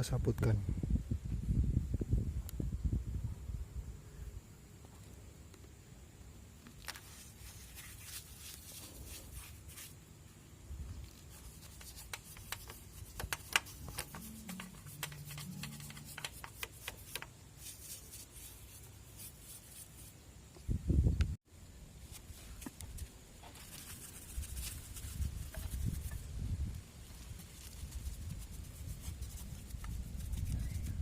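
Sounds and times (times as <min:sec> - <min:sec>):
brush scrubbing metal: 0:07.0 - 0:10.0, 0:11.0 - 0:20.1, 0:23.5 - 0:26.2, 0:27.0 - 0:30.8.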